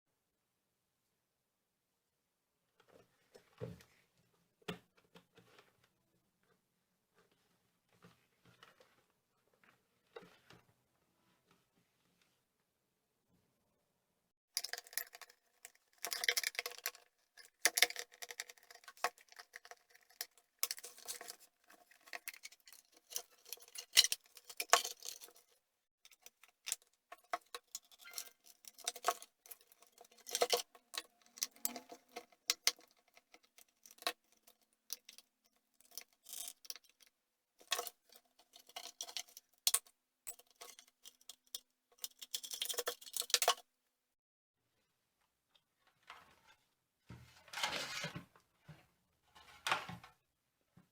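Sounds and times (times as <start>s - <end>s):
hard parts clicking and rattling: 14.6s - 43.6s.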